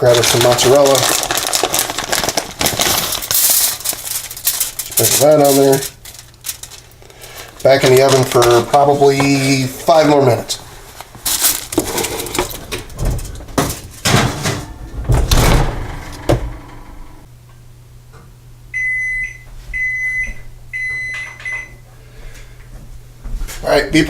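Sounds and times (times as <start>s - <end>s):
oven humming: 1.6s - 24.0s
oven timer beeping: 18.7s - 21.8s.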